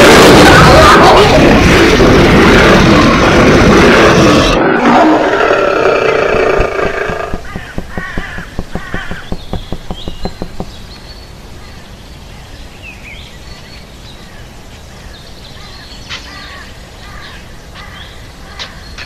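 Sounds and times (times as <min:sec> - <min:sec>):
birds chirping: 0:00.0 - 0:19.0
rapid thumps: 0:05.3 - 0:10.8.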